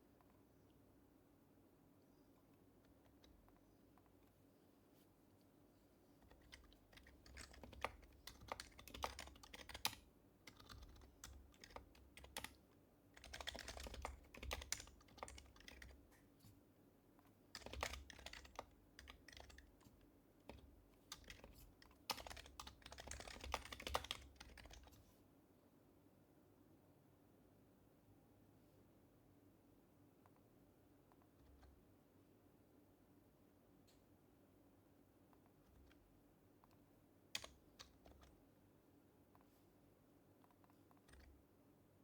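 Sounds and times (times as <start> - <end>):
soft muffled keyboard typing: 1.9 - 25.2, 30.2 - 32.0, 35.1 - 38.6, 39.2 - 42.0.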